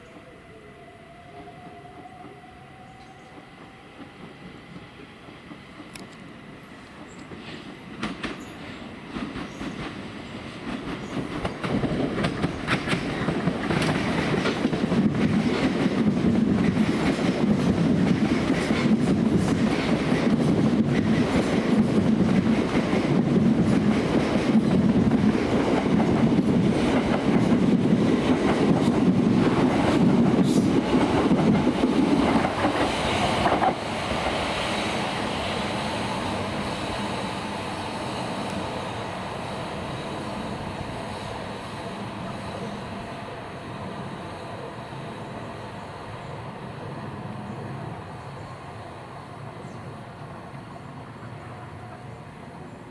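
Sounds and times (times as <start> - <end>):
passenger train passing: 0.0 - 52.9
wheels clicking over rail joints: 10.6 - 33.8.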